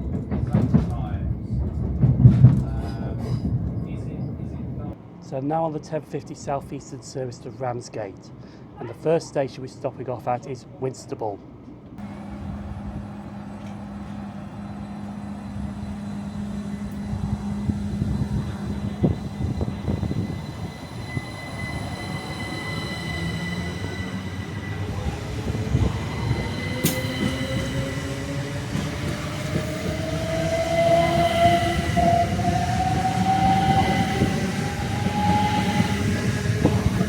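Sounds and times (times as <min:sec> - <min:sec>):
electric train motor whine: 0:12.0 - 0:37.0.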